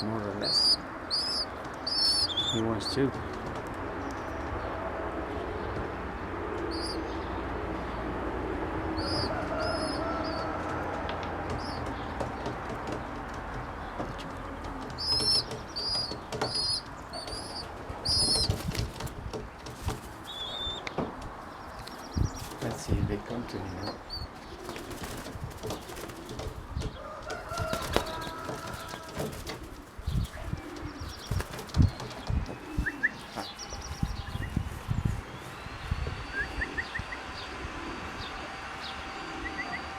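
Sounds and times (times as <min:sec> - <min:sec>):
pigeons flapping wings: 0:00.0 - 0:07.2, 0:08.2 - 0:34.6
pigeons cooing: 0:00.0 - 0:39.9
low thumps: 0:24.8 - 0:37.7.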